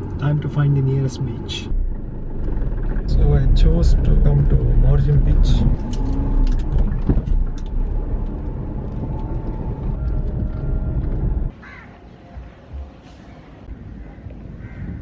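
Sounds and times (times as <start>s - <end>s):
open-air ambience: 0.0s - 15.0s
vehicle rumble: 0.0s - 15.0s
wind: 0.0s - 15.0s
crow cawing: 11.6s - 12.0s, 14.0s - 15.0s.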